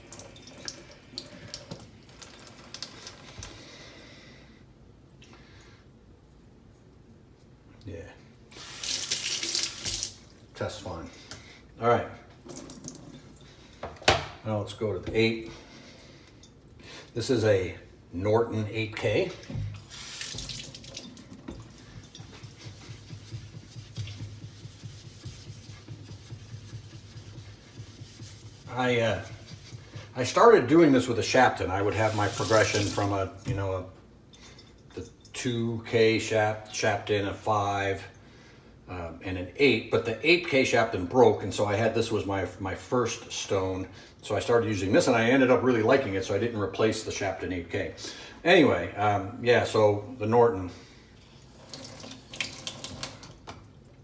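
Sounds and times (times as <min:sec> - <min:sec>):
tap water running into sink: 0:00.0 - 0:03.6, 0:08.6 - 0:10.2, 0:12.4 - 0:14.3, 0:19.3 - 0:28.6, 0:31.9 - 0:33.7, 0:51.5 - 0:53.7.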